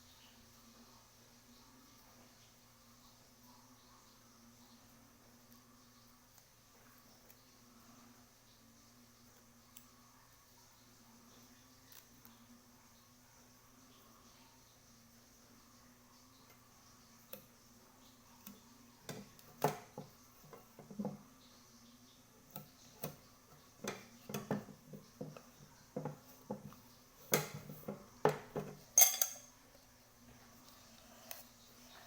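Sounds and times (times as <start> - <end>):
faint low hum: 0.0 - 32.0
metallic clinks and knocks: 28.5 - 29.6.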